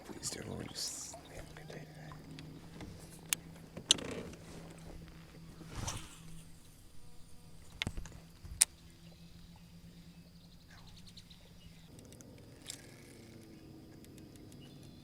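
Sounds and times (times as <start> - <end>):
faint steady hum: 0.0 - 15.0
knocks and clicks of gear: 2.2 - 5.3.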